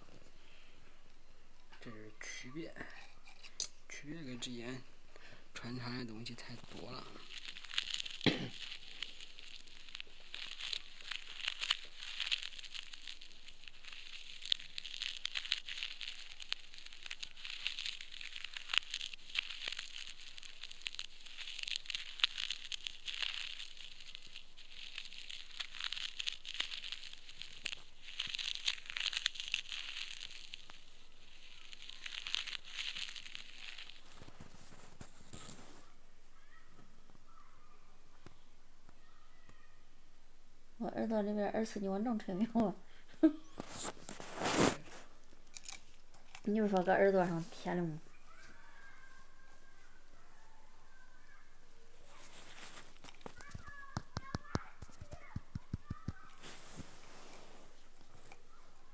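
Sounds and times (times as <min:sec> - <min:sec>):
ear pick scraping in ear canal: 0:43.5 - 0:47.7.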